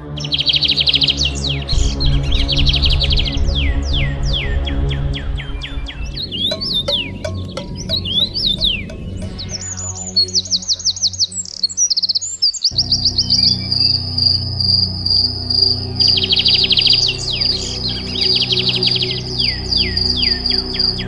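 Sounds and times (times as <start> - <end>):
ambient music low drone: 0.0 - 21.0
birds chirping and trilling: 0.0 - 21.0
high insect-like buzz: 12.7 - 21.0.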